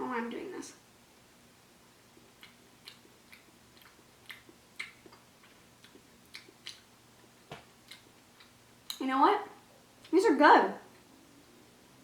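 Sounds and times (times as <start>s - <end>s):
mouth chewing wet clicks: 2.2s - 9.0s.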